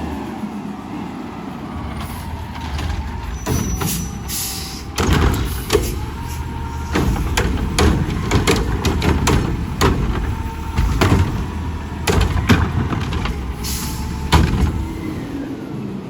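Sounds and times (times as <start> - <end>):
garbage truck engine running: 0.0 - 16.0
metal knocks and clanks: 1.9 - 15.3
air hissing: 3.3 - 12.4, 13.1 - 15.3.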